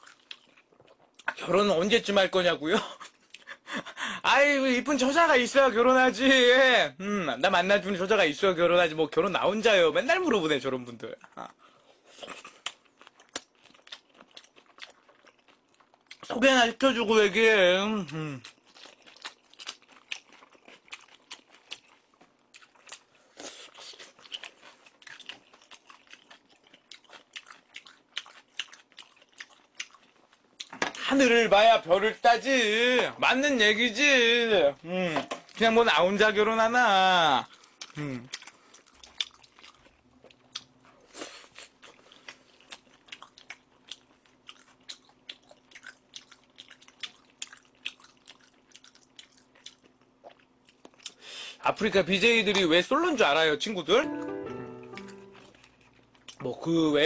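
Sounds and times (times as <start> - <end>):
crunchy chewing: 0.0 - 1.4, 11.7 - 16.3, 18.0 - 30.8, 37.4 - 51.2.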